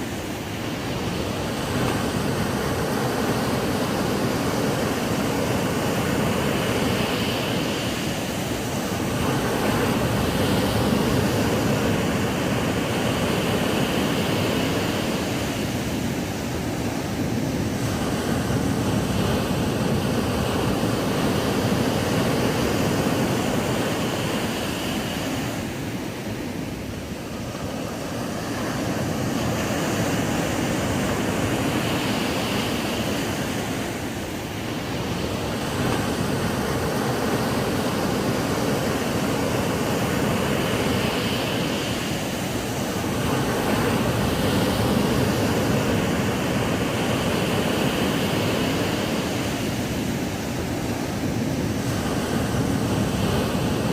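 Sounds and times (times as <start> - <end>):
ocean waves breaking on beach: 0.0 - 53.9.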